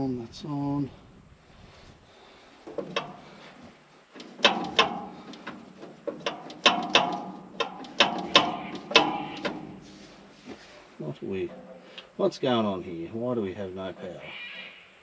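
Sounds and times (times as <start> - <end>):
starter motor clunking: 2.6 - 10.3.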